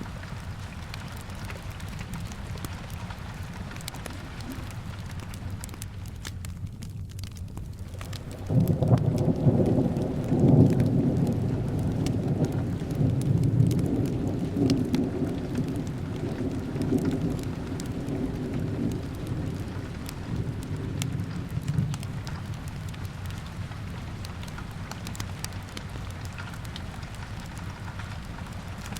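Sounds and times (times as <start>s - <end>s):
steady rain: 0.0s - 28.9s
fireplace crackling: 0.1s - 28.9s
thunder rolling: 8.1s - 25.2s.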